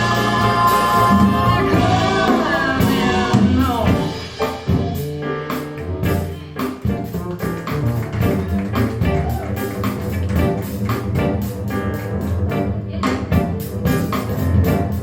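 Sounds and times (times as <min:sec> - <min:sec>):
sung vocals: 0:00.0 - 0:04.2
drum hits: 0:00.0 - 0:12.2.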